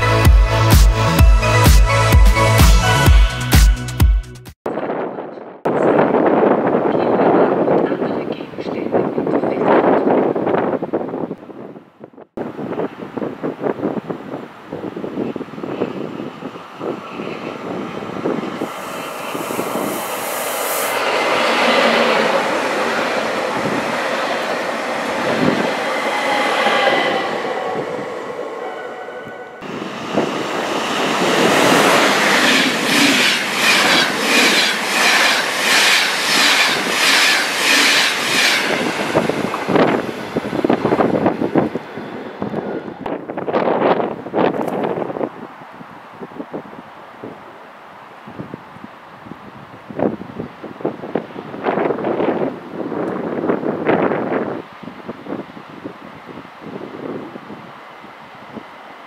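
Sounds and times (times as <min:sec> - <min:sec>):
train wheels rushing on rail: 0:14.8 - 0:45.1.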